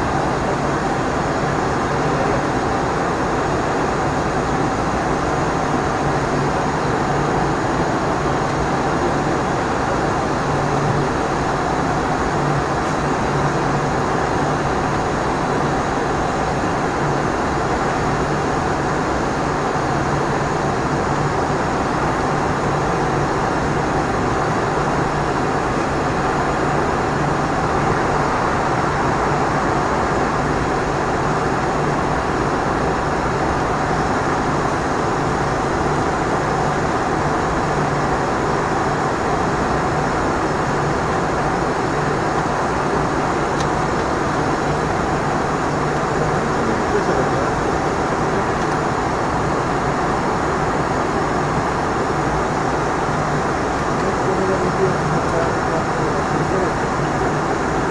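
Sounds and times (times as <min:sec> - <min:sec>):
airflow and jet engine noise: 0:00.0 - 0:57.9
constant low hum: 0:20.0 - 0:52.7.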